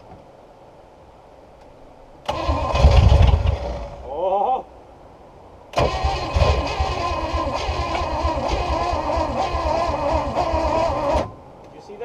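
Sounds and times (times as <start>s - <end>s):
boat engine cranking on starter: 2.2s - 4.0s, 5.7s - 11.4s.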